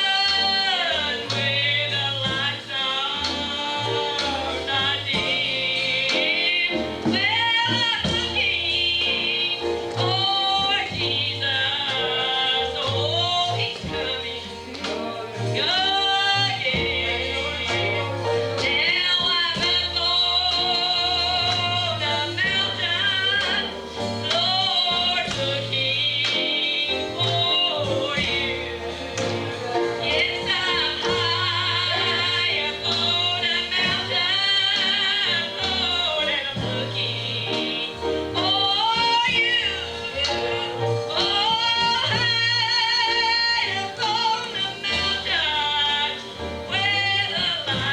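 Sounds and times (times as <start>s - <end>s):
gospel singing with accompaniment: 0.0s - 47.9s.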